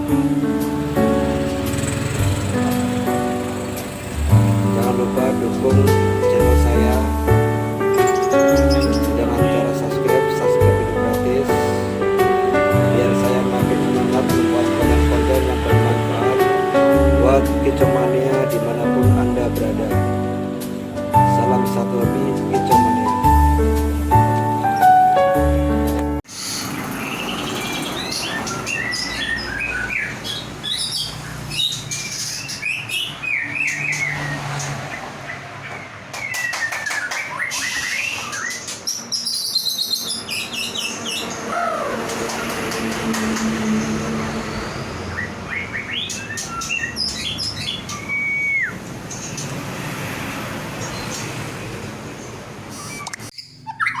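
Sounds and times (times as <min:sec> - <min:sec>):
songbird whistling song: 0:07.8 - 0:09.3, 0:26.3 - 0:43.0, 0:43.8 - 0:49.6, 0:52.7 - 0:54.0.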